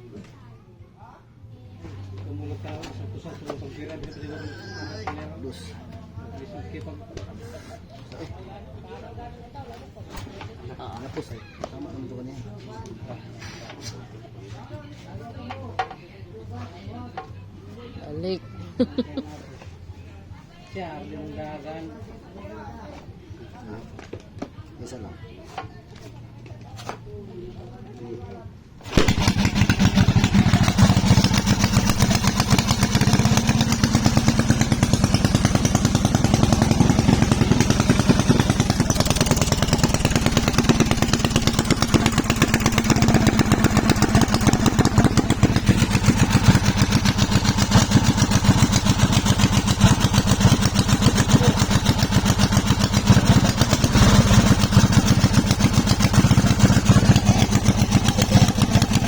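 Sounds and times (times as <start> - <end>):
single-cylinder engine running: 28.8 - 59.0.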